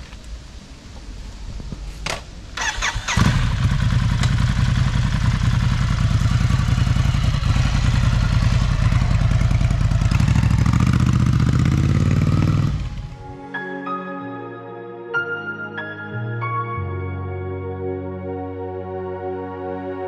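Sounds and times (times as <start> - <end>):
motorcycle starter cranking: 2.6 - 9.0
motorcycle engine idling: 2.6 - 13.2.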